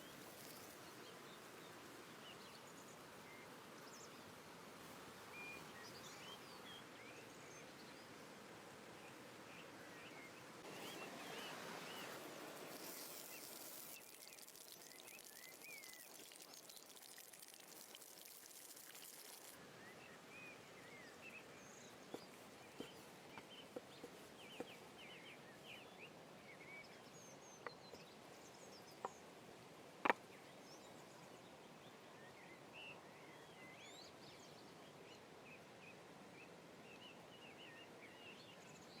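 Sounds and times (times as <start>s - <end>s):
small birds chirping: 0.0s - 4.4s, 9.0s - 29.3s
high hiss: 10.7s - 16.4s.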